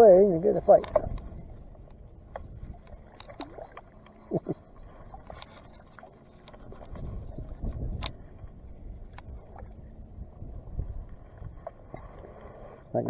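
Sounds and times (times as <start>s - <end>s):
water splashing: 0.0s - 9.8s
wind rumbling on microphone: 0.0s - 13.0s
small clicks: 0.8s - 4.2s, 7.7s - 8.2s.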